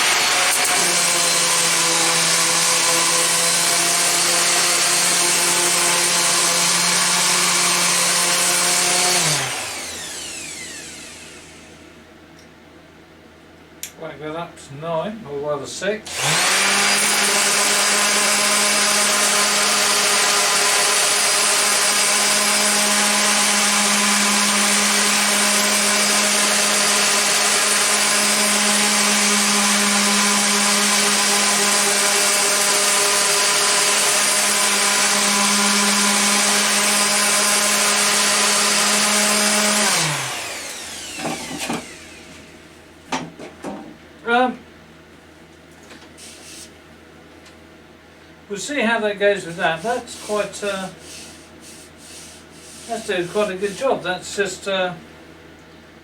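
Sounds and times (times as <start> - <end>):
orbital sander sanding wood: 0.0 - 11.8, 16.1 - 42.6, 46.2 - 46.7, 49.4 - 54.5.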